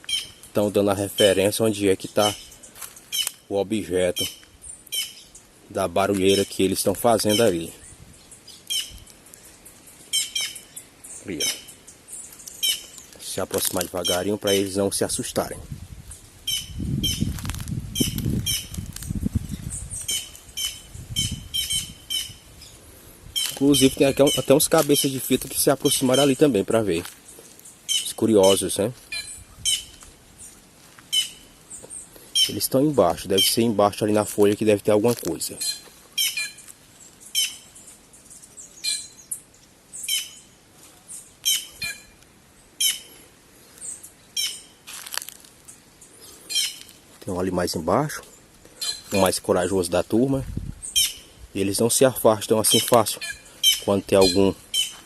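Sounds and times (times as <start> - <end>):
jays squawking alarm calls: 0.0 - 5.6, 6.2 - 9.2, 9.9 - 14.9, 16.3 - 18.9, 19.7 - 30.0, 31.1 - 33.9, 35.5 - 38.0, 38.6 - 45.0, 45.6 - 47.0, 48.6 - 49.7, 50.8 - 51.5, 52.3 - 55.0
low rustling rumble: 15.6 - 23.4.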